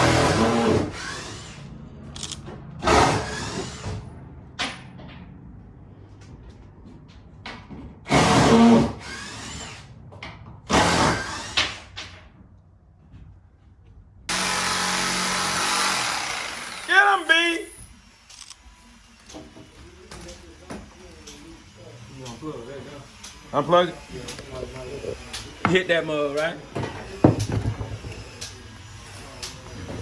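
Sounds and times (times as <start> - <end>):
power drill motor: 0.0 - 4.1, 8.1 - 10.0, 10.7 - 12.0, 14.3 - 30.0.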